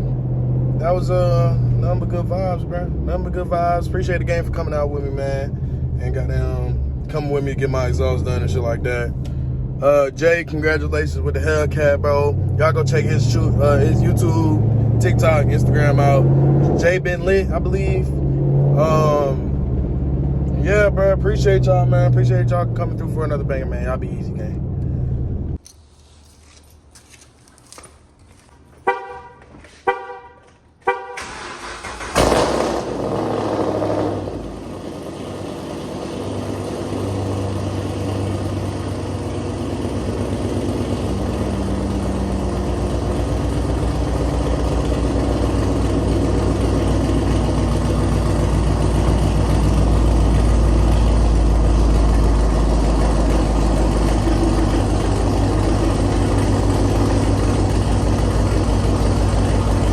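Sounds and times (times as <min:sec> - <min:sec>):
car engine starting and idling: 0:00.0 - 0:25.6, 0:30.8 - 0:59.9
car horn honks: 0:28.8 - 0:31.6.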